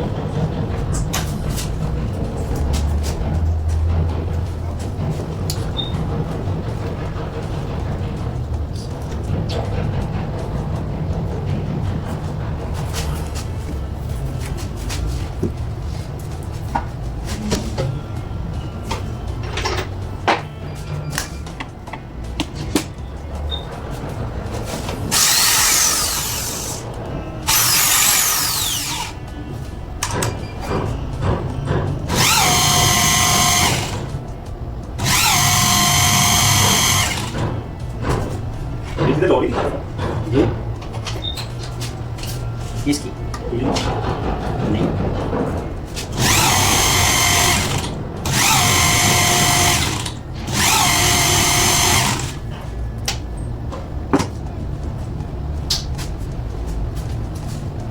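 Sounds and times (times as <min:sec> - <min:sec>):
steady low hum: 0:00.0 - 0:57.9
electric power tool whining: 0:25.1 - 0:26.8, 0:27.4 - 0:29.2, 0:32.1 - 0:34.1, 0:35.0 - 0:37.5, 0:46.1 - 0:52.4.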